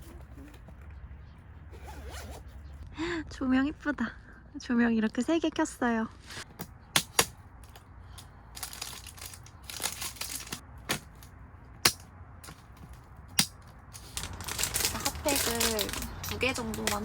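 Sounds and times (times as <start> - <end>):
plastic packaging crinkling: 8.6 - 10.6, 14.0 - 17.0.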